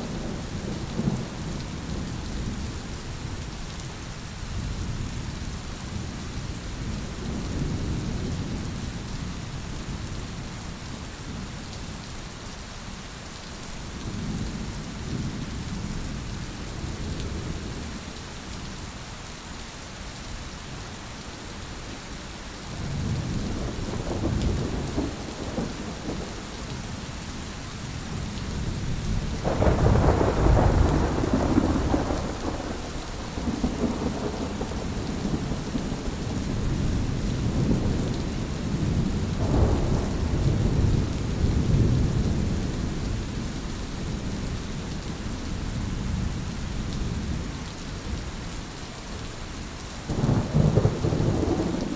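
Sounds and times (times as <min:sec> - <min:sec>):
steady rain: 0:00.0 - 0:51.9
thunder rolling: 0:23.0 - 0:26.8, 0:29.2 - 0:42.6, 0:50.1 - 0:51.9.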